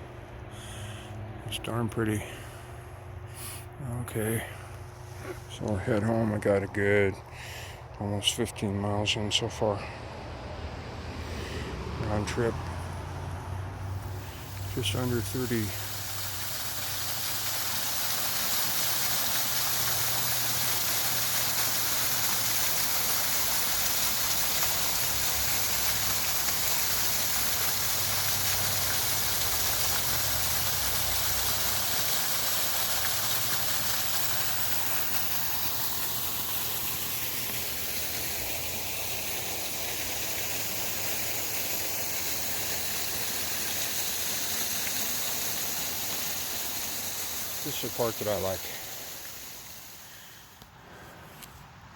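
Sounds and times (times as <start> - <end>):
bicycle tyres on trail: 20.0 - 51.8.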